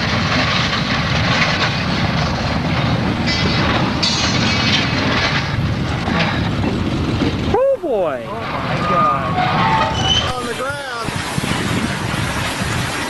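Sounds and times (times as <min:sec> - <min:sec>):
train rumbling and grinding: 0:00.0 - 0:13.0
high metallic screeching: 0:08.3 - 0:13.0.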